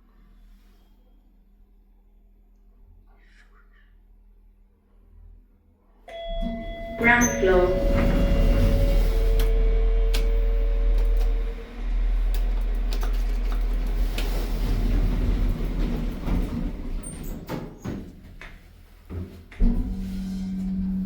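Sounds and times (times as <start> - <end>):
low rumble and hum: 6.1 - 16.8, 19.6 - 21.0
lift doors sliding open: 6.1 - 18.4, 19.6 - 21.0
mechanical rumble with clicks: 6.3 - 21.0.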